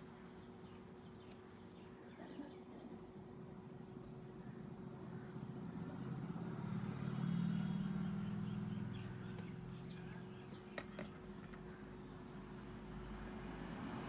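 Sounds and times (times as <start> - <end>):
vehicle engine passing: 4.8 - 10.7, 12.4 - 14.0.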